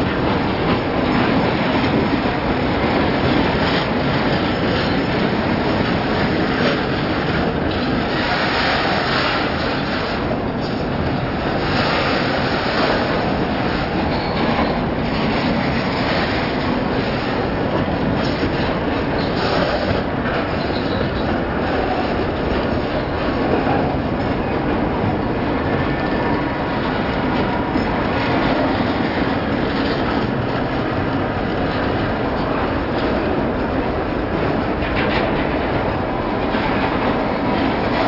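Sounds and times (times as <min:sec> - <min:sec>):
freight train wheels on rails: 0:00.0 - 0:38.0.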